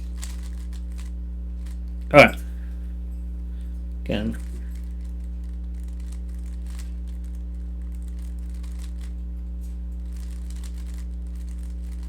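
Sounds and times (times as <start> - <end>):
low electrical hum: 0.0 - 12.0
plastic puzzle cube clicking: 5.0 - 7.4, 8.0 - 9.1, 10.1 - 12.0.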